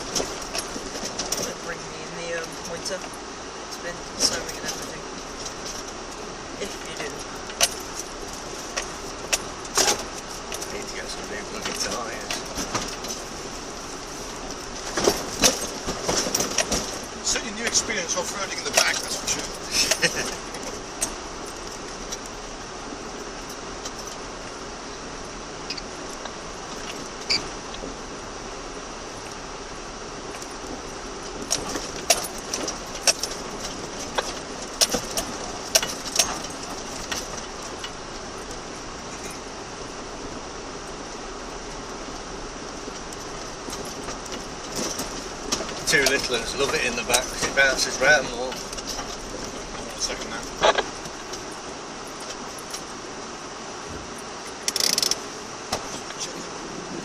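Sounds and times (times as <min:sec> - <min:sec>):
knocks and jangling rattles: 0:00.0 - 0:56.4
engine and tyres droning: 0:00.0 - 0:57.0
off-road vehicle cabin noise: 0:00.0 - 0:57.0.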